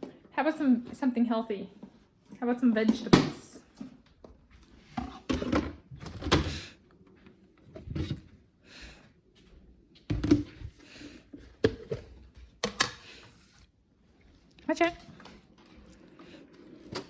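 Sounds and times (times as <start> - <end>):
knocks and thuds of containers: 5.0 - 6.6.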